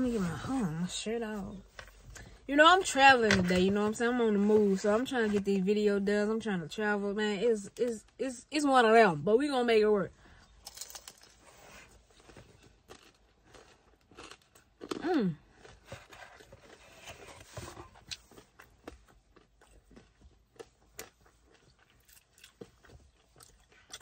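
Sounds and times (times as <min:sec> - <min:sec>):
person chewing crunchy pizza: 0:10.6 - 0:24.0.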